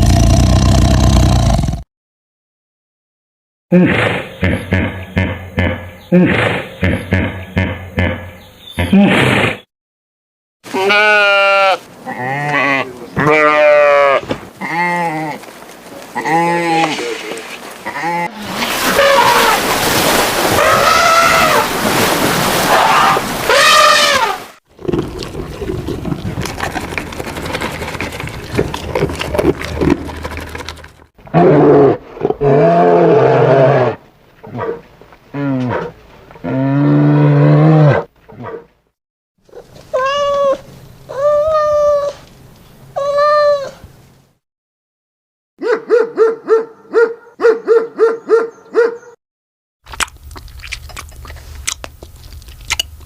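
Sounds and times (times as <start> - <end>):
rising-and-falling animal calls: 20.6 - 21.7, 22.7 - 24.5
loud wavering animal calls: 22.7 - 24.5
deep drawn-out animal calls: 22.7 - 34.6.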